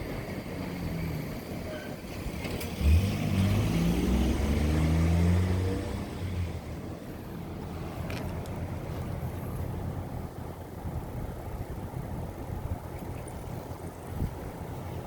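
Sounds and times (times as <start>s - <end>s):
vehicle engine accelerating past: 2.3s - 6.8s.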